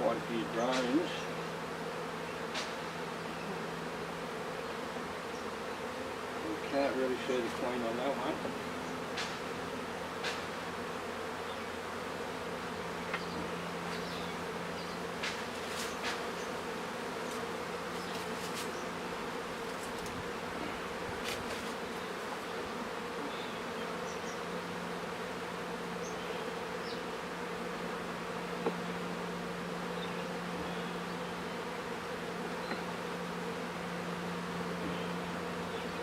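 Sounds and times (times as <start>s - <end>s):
honeybees buzzing: 0.0s - 36.0s.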